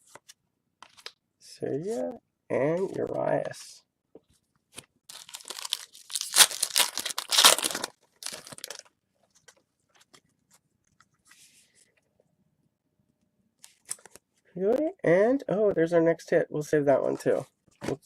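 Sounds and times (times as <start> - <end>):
foil wrapper tearing and crinkling: 5.1 - 8.8
cards rustling: 5.1 - 10.2.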